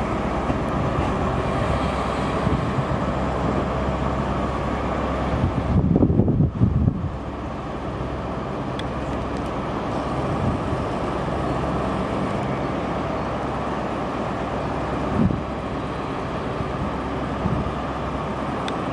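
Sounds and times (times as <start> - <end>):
wind noise on microphone: 0.0 - 3.9, 4.7 - 7.4, 10.1 - 10.9, 15.0 - 15.6, 16.6 - 17.9
train rumbling slowly: 0.0 - 18.9.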